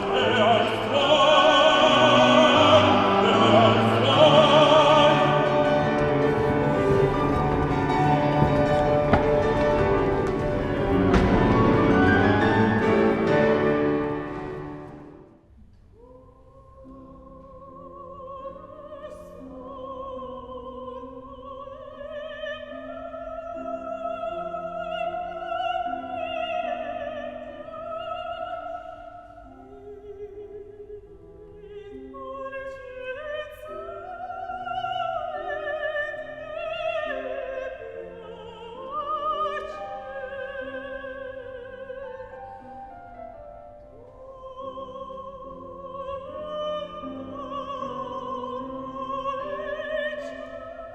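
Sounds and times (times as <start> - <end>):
operatic singing high voice: 0.0 - 14.8
instrumental accompaniment: 0.0 - 15.4.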